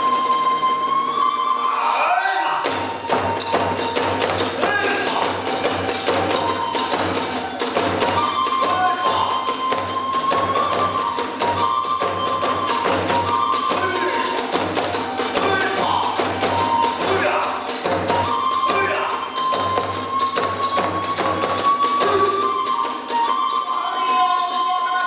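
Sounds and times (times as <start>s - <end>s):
bamboo flute melody: 0.0s - 25.0s
steady drum beat: 2.7s - 22.4s.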